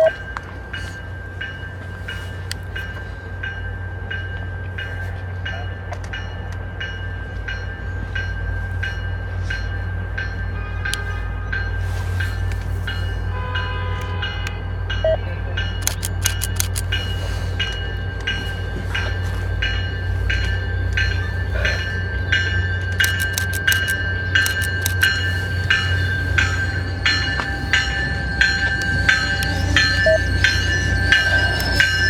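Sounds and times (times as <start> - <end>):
train rumbling past: 0.0 - 32.0
bell ringing: 14.4 - 32.0
sharp clicks: 15.8 - 16.9, 22.9 - 25.2.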